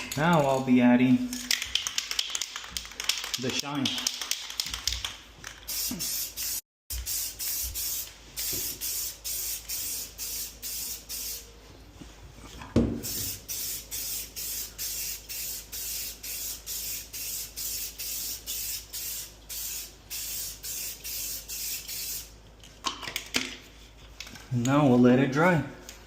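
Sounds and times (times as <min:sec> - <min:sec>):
paint spray hissing bursts: 0:05.7 - 0:11.5, 0:13.0 - 0:22.4.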